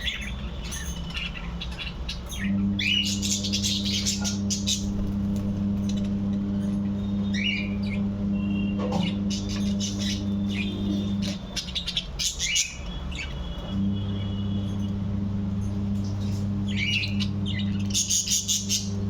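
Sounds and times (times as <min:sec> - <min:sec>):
budgerigars chirping: 0:00.0 - 0:05.2, 0:06.9 - 0:08.1, 0:09.0 - 0:13.7, 0:16.7 - 0:19.0
steady low hum: 0:00.0 - 0:19.0.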